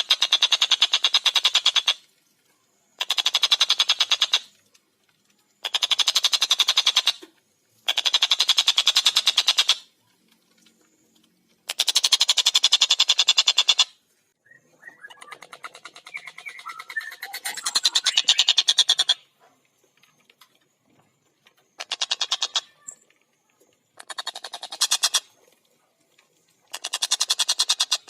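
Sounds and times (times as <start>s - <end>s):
kingfisher rattling calls: 3.0s - 4.5s, 5.6s - 7.2s, 7.9s - 9.9s, 11.6s - 13.9s, 14.8s - 19.3s, 21.8s - 23.0s, 24.0s - 25.4s, 26.7s - 28.0s
soft bird chirping: 14.4s - 24.8s.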